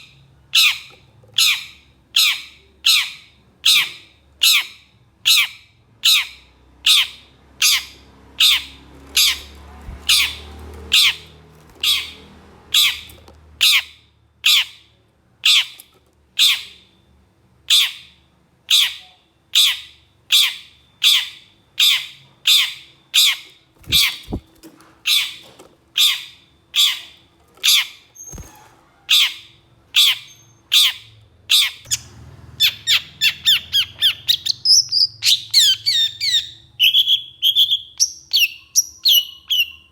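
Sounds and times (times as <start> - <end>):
bird giving harsh rasping calls: 0.5 - 15.8, 19.6 - 32.0.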